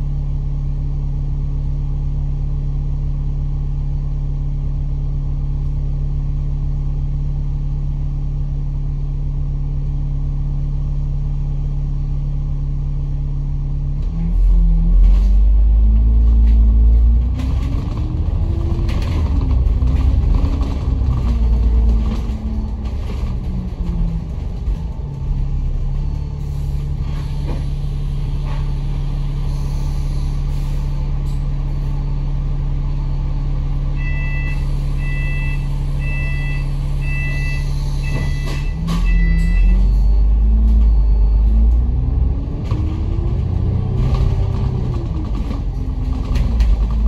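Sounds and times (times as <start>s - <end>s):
bus diesel engine idling: 0.0s - 47.0s
bus engine revving: 14.0s - 32.0s, 37.6s - 47.0s
two-tone electronic beeps: 34.0s - 41.7s.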